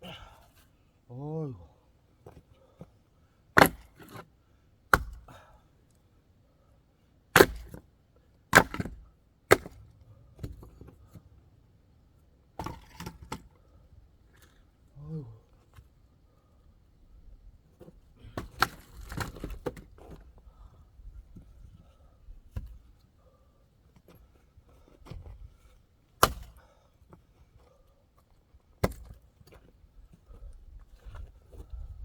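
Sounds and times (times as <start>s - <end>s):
axe cracking into wood: 3.6s - 4.2s, 4.9s - 5.3s, 7.4s - 7.8s, 8.5s - 9.8s, 18.3s - 19.9s, 26.2s - 26.6s, 28.8s - 29.2s.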